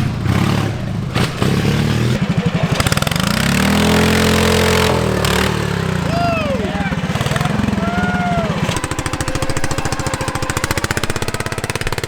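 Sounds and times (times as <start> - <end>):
lawn mower engine revving: 0.0 - 12.0.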